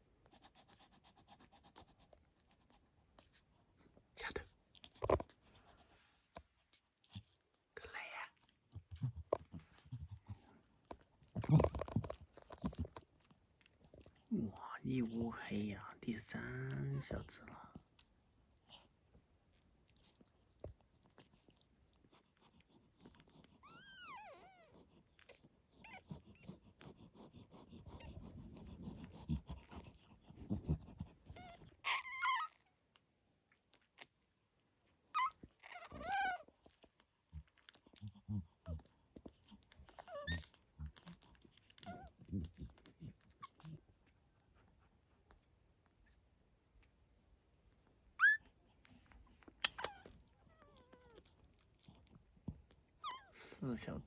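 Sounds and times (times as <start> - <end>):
dog whimpering: 23.0 - 32.7, 35.1 - 36.8, 39.4 - 43.8, 48.2 - 48.5, 49.6 - 51.3, 53.0 - 53.5
newborn puppies squeaking: 23.6 - 26.6, 31.3 - 32.7, 35.2 - 36.5, 48.2 - 48.6, 49.6 - 51.2.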